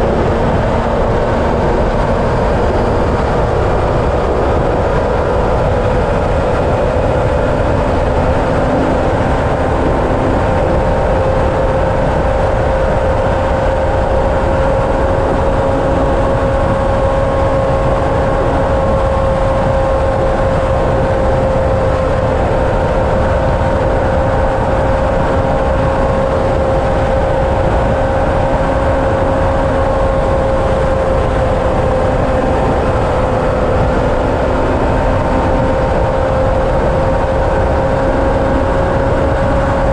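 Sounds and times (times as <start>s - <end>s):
continuous rushing noise: 0.0s - 39.9s
engine drone with whine: 0.0s - 39.9s.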